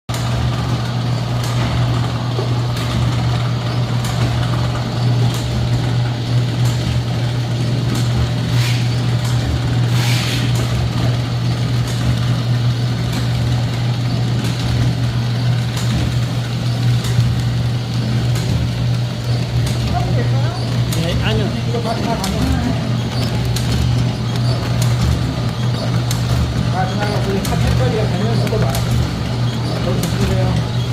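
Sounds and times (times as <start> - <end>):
machine motor hum: 0.1 - 30.9
short hisses: 9.9 - 10.5
faint machine clicks: 19.2 - 30.9.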